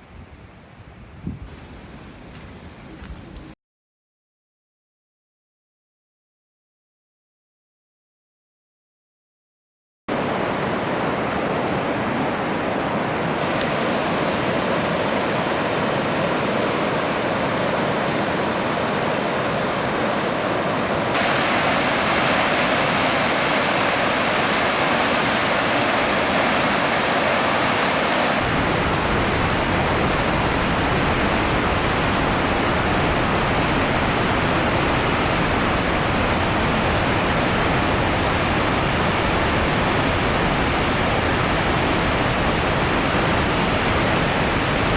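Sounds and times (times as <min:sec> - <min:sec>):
waterfall roaring: 0:10.1 - 0:44.9.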